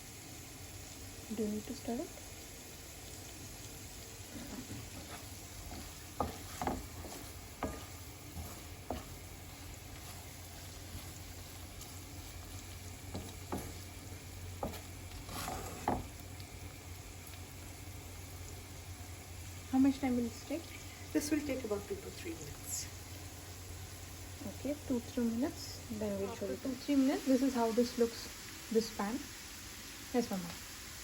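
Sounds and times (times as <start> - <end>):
food sizzling in oil: 0.0 - 31.0
spoon scraping a pan: 4.5 - 14.0, 14.6 - 16.2.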